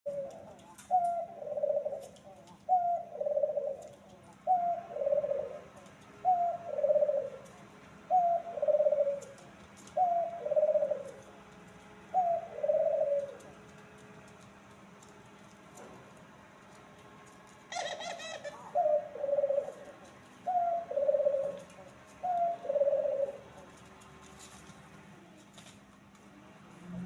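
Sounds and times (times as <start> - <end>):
dove cooing: 0.1 - 14.1, 17.7 - 24.5.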